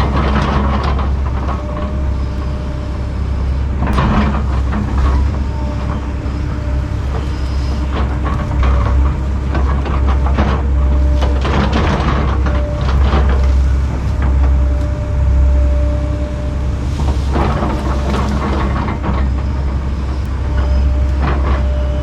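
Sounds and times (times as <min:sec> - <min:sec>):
excavator diesel engine running: 0:00.0 - 0:22.0
faint hydraulic whine: 0:01.0 - 0:09.7, 0:12.5 - 0:22.0
brush and roots cracking: 0:11.0 - 0:19.2.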